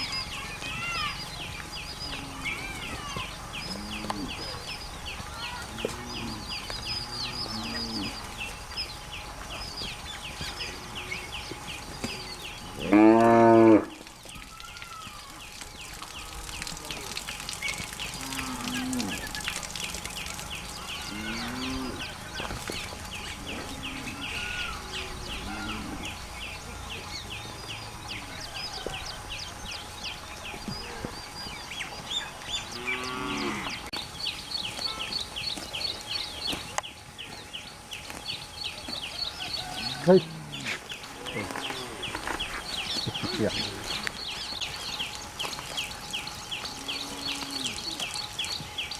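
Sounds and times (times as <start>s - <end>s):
cows mooing: 2.0s - 4.7s, 5.5s - 8.5s, 12.1s - 14.0s, 17.9s - 19.4s, 20.9s - 26.3s, 32.7s - 33.9s, 39.7s - 44.2s, 46.6s - 48.2s.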